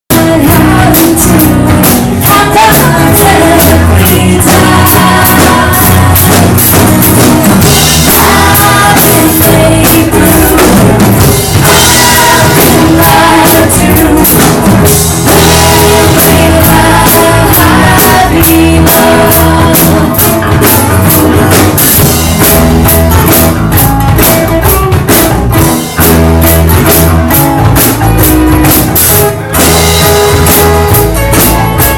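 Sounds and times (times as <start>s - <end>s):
distorted live band music: 0.1s - 31.9s.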